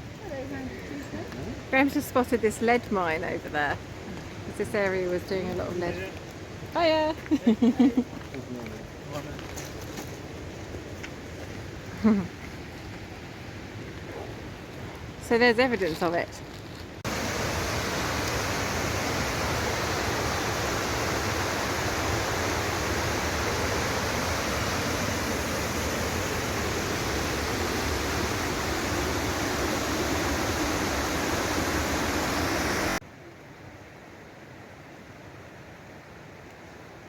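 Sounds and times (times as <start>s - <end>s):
waterfall rushing: 17.1s - 33.0s.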